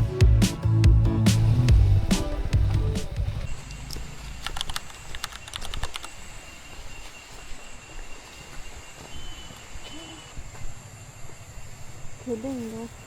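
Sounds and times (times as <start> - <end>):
background music: 0.0 - 3.5
light rapid clicks: 3.6 - 6.2.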